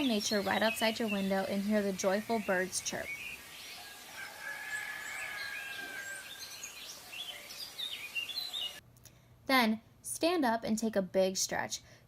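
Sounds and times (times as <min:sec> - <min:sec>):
songbirds chirping: 0:00.0 - 0:08.8
background hiss: 0:00.0 - 0:10.3.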